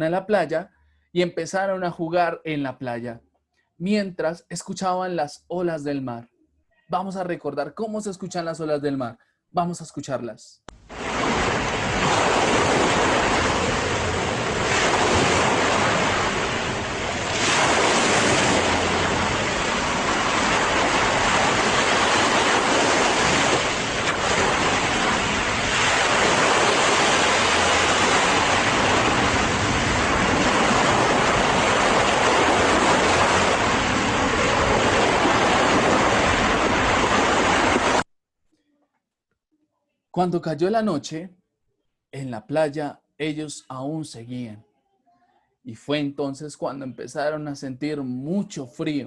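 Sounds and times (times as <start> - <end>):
ocean waves breaking on beach: 10.8 - 38.0.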